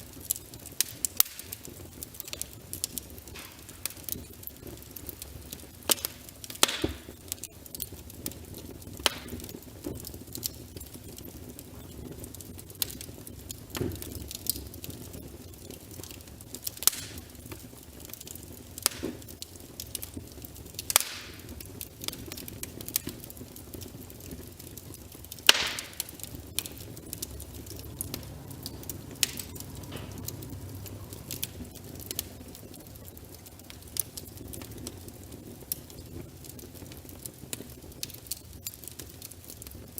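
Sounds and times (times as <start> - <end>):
logs crackling in a fireplace: 0.0 - 39.9
low rumble of flames: 0.0 - 39.9
loud wood pops: 3.4 - 4.0, 5.9 - 7.1, 20.9 - 21.5, 25.4 - 26.8.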